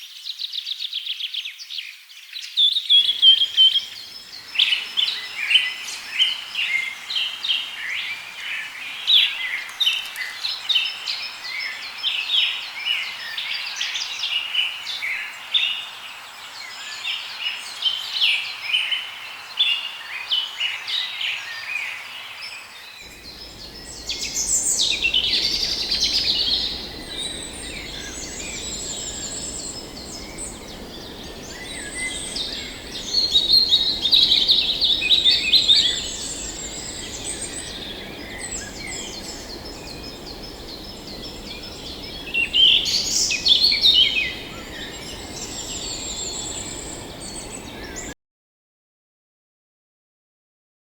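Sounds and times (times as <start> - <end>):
steady low hiss: 3.0 - 14.1, 23.0 - 48.1
birds chirping and calling: 23.1 - 48.1.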